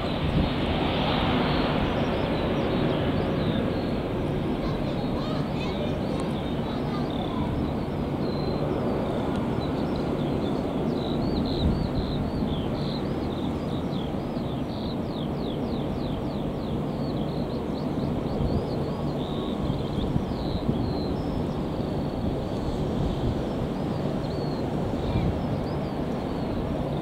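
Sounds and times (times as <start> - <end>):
jet engines rumbling: 0.0 - 27.0.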